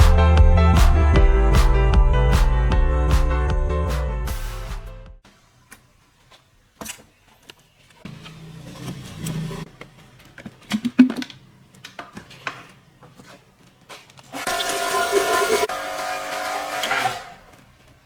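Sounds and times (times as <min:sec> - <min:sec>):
music: 0:00.0 - 0:05.2
rustling and scraping: 0:05.8 - 0:14.3.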